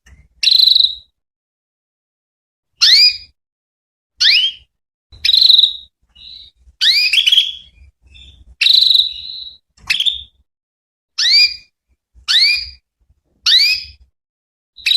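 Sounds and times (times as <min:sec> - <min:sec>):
canary chirping: 0:00.3 - 0:01.1, 0:02.8 - 0:03.4, 0:04.2 - 0:10.4, 0:11.2 - 0:12.8, 0:13.4 - 0:14.0.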